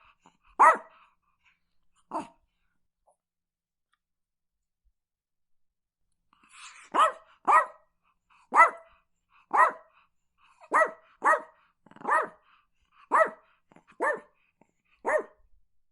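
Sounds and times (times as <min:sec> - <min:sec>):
small dog barking: 0:00.6 - 0:01.0, 0:06.8 - 0:07.9, 0:08.5 - 0:10.0, 0:10.6 - 0:14.4, 0:15.0 - 0:15.4.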